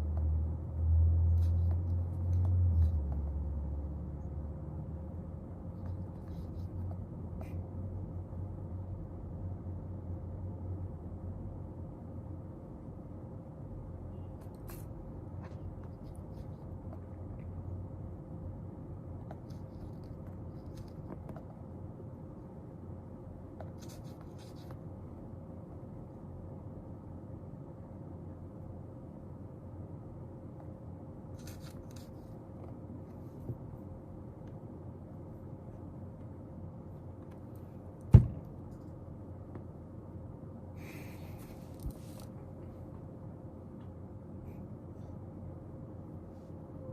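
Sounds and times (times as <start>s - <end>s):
low room hum: 0.0s - 46.9s
pen scratching on paper: 5.7s - 7.6s, 14.4s - 17.1s, 19.2s - 21.6s, 23.6s - 24.8s.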